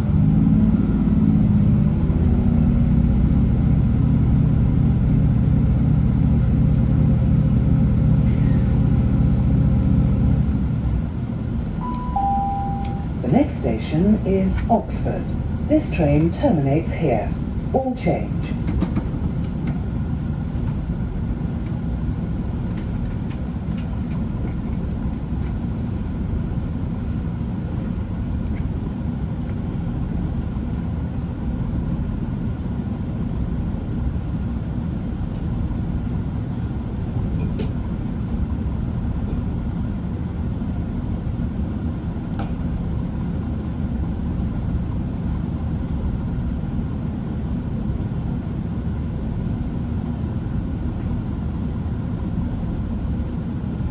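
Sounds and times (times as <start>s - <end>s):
train diesel engines idling: 1.1s - 35.2s
faint whine: 11.5s - 18.6s.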